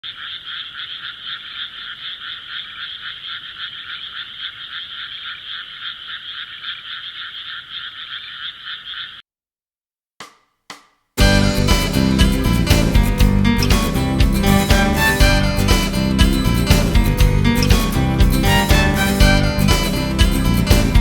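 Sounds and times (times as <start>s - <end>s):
chorus of pulsing animal calls: 0.0s - 9.2s.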